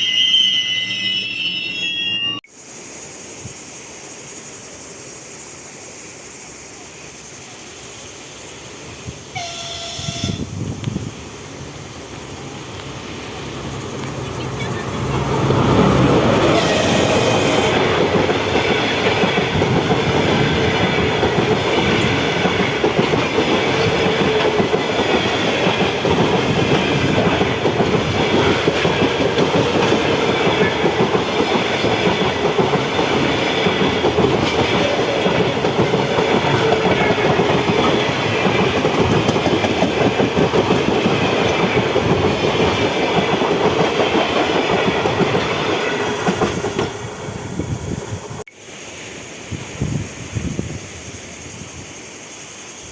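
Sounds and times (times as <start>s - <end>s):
train wheels rumbling on rails: 0.0s - 52.9s
clickety-clack over rail joints: 13.8s - 47.2s.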